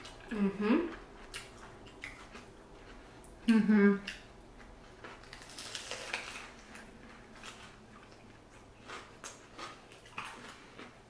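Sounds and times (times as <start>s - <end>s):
people chewing: 0.0s - 11.0s.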